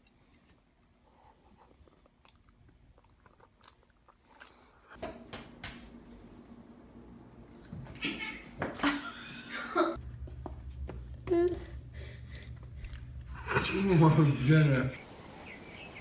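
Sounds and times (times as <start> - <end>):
chewing and crunching: 0.0 - 5.0.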